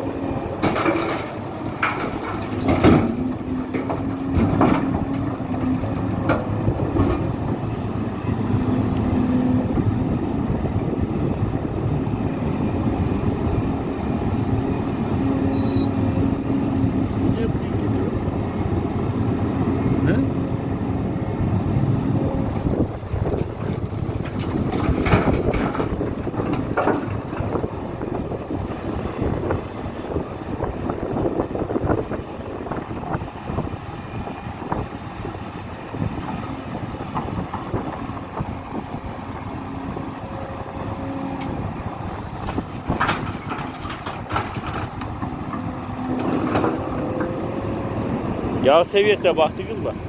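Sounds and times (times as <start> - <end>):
excavator diesel engine: 0.0 - 50.0
knocks and clatter: 0.6 - 7.5, 22.5 - 27.7, 42.4 - 47.4.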